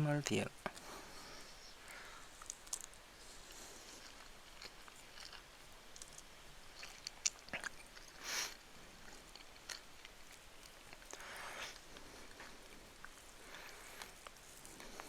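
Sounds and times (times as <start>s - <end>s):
person chewing food: 0.7s - 15.0s
brief hiss: 8.2s - 8.6s.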